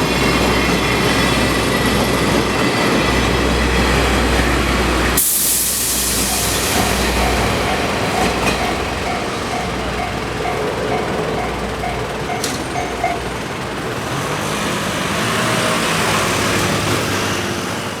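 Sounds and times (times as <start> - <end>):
train coaches rumbling past: 0.0 - 18.0
level crossing alarm dinging: 6.0 - 13.8.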